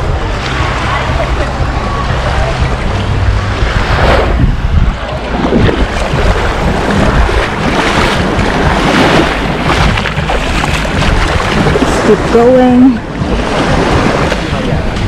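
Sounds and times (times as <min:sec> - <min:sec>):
wind buffeting microphone: 0:00.0 - 0:15.0
small waves breaking on shore: 0:05.0 - 0:15.0.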